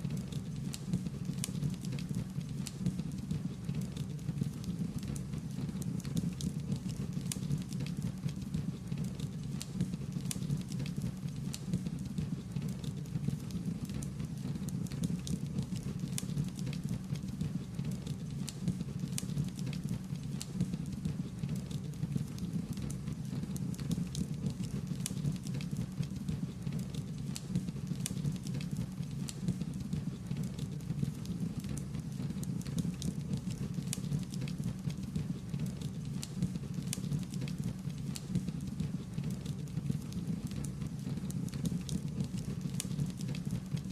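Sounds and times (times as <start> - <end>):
wood fire crackling: 0.2 - 43.9.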